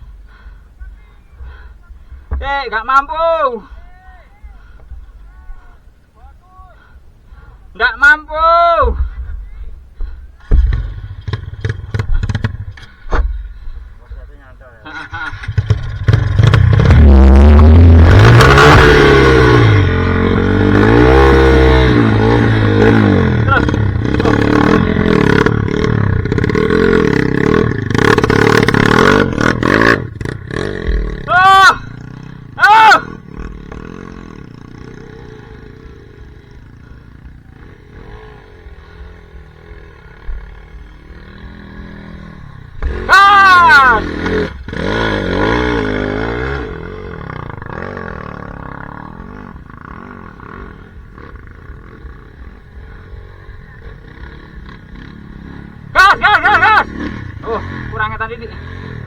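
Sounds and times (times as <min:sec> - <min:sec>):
motorcycle engine revving: 0:08.8 - 0:59.0.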